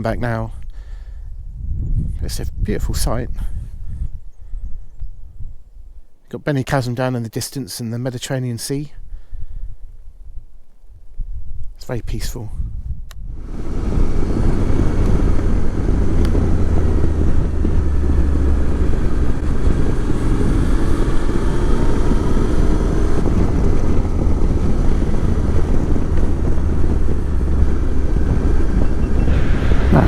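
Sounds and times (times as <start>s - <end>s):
wind noise on microphone: 0.0s - 6.3s, 9.0s - 30.0s
motorcycle engine running: 13.6s - 30.0s.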